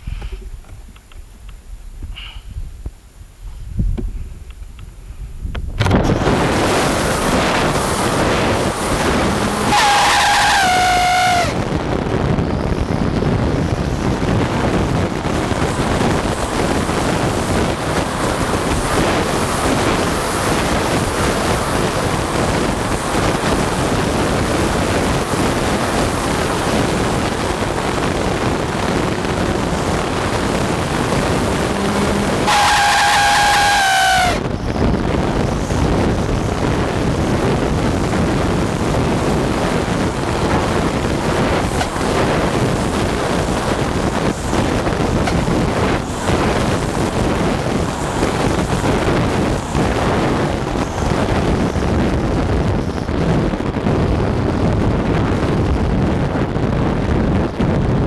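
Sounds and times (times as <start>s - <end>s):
wind on microphone: 0.0s - 58.0s
rush of water: 5.8s - 12.1s, 14.0s - 34.5s, 35.4s - 53.8s
rc speedboat running: 5.8s - 53.5s
propeller high squeal: 5.8s - 54.7s.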